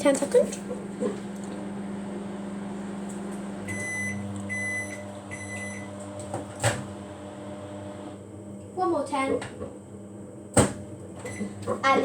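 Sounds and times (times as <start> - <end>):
microwave oven humming: 0.0 - 12.0
microwave long beeps: 3.6 - 6.3, 11.2 - 11.6.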